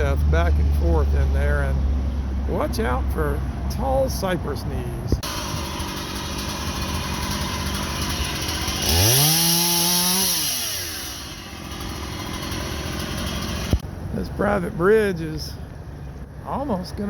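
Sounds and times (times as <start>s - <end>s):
chainsaw idling and revving: 5.2s - 13.9s.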